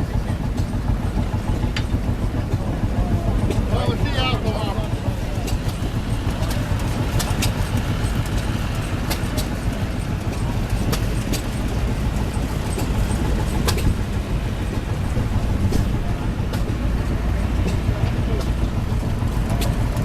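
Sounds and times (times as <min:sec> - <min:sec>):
engine running low rumble: 0:00.0 - 0:20.0.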